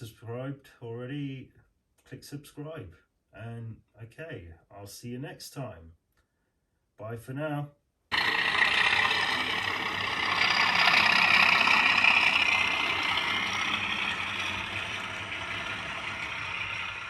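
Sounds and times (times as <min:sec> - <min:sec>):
hissing mechanical engine noise: 0:08.1 - 0:17.0.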